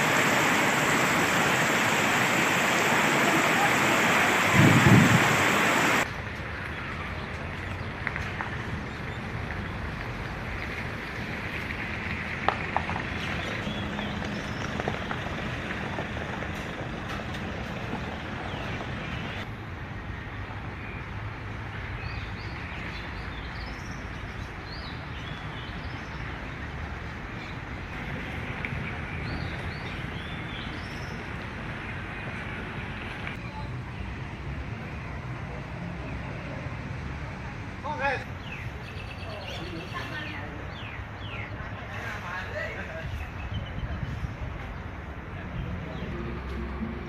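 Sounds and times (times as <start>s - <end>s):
loud rushing noise: 0.0s - 6.1s
outdoor background noise: 0.0s - 47.0s.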